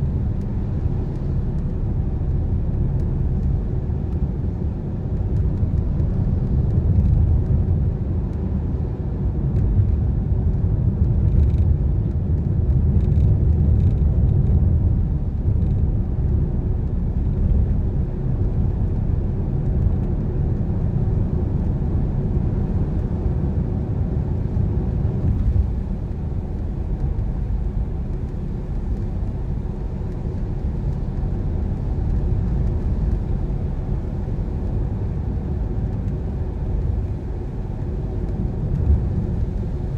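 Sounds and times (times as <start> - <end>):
car rumbling on wet road: 10.9 - 39.9.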